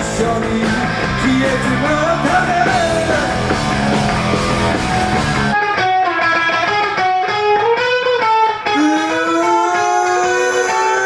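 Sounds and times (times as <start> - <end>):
rock band playing: 0.0 - 11.0
electric guitar solo: 2.8 - 11.0.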